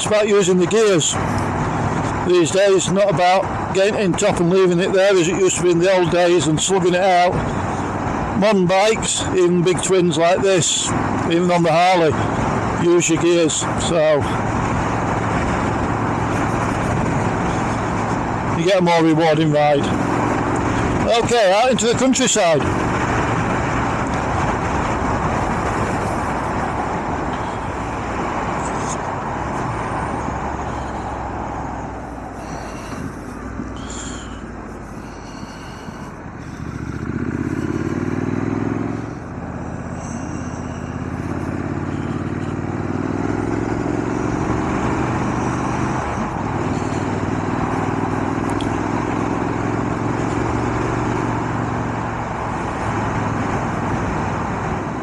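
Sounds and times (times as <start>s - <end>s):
motorcycle engine: 0.7s - 55.0s
wind rush: 22.6s - 34.8s.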